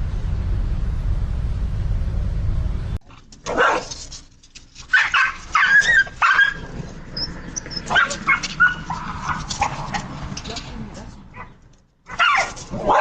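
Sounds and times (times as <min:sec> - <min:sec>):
low steady rumble: 0:00.0 - 0:03.0
dog barking and yelping: 0:03.4 - 0:04.1, 0:04.8 - 0:10.2, 0:11.3 - 0:13.0.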